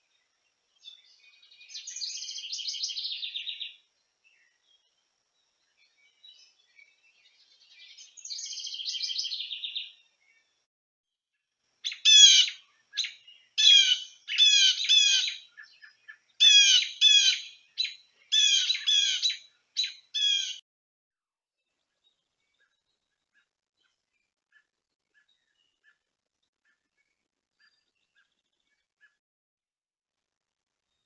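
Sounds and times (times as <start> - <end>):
faint buzzy bird trill: 0.0 - 10.7, 11.4 - 20.6, 21.6 - 29.2
sharp bird chirps: 0.8 - 3.8, 5.8 - 10.5, 11.8 - 20.6.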